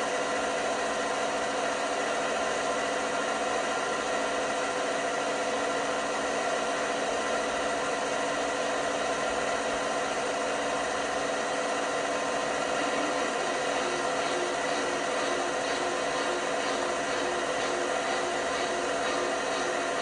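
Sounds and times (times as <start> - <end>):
washing machine running: 10.8 - 20.0.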